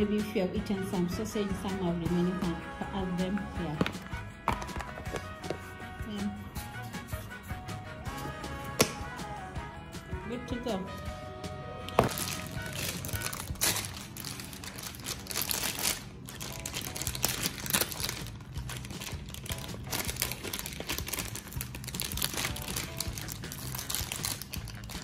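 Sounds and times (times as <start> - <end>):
plastic crinkling: 11.9 - 25.0.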